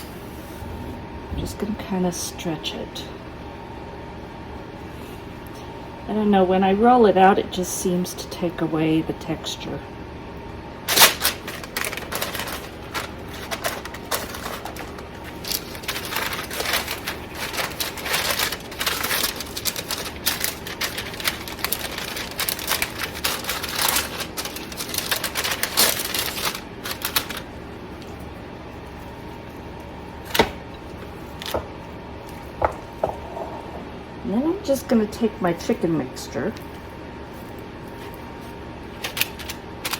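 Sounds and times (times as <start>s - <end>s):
parchment paper crinkling: 10.9s - 33.1s, 36.4s - 39.9s.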